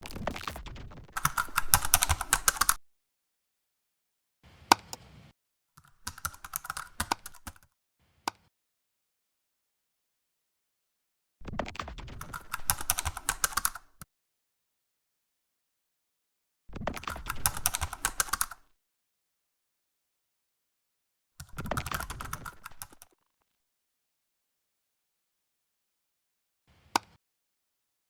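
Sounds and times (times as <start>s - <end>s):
rapid keyboard typing: 0.0s - 2.8s, 5.8s - 7.6s, 11.8s - 14.0s, 16.9s - 18.7s, 21.4s - 23.1s.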